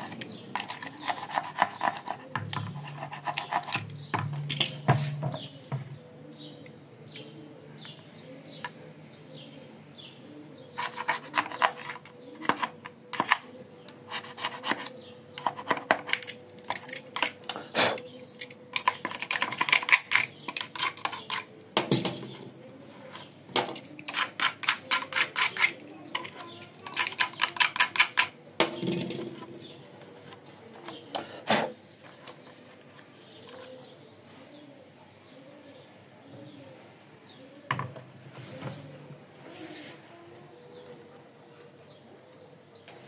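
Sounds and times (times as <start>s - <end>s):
hands scraping and clicking on machine: 0.0s - 5.4s, 10.8s - 13.5s, 14.1s - 21.5s, 23.1s - 28.4s.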